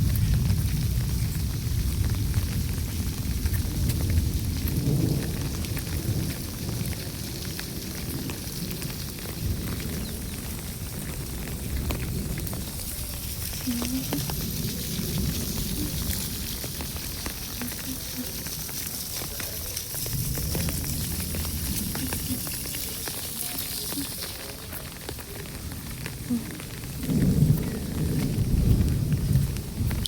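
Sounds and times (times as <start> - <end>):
steady rainfall: 0.0 - 30.0
low rumble: 19.6 - 23.6.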